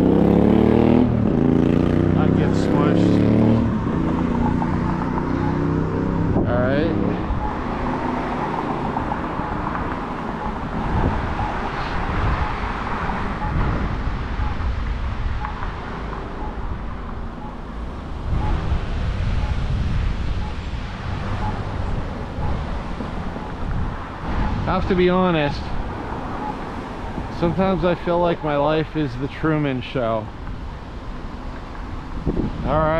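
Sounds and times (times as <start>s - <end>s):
road traffic going by: 0.0s - 32.9s
wind buffeting microphone: 3.7s - 28.4s, 30.3s - 32.9s.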